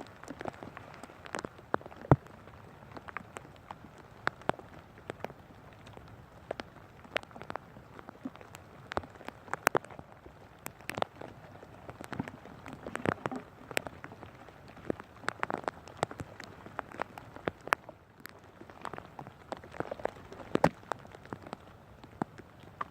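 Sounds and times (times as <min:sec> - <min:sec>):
rain hissing: 0:00.0 - 0:22.4
raindrops tapping nearby: 0:00.0 - 0:22.9.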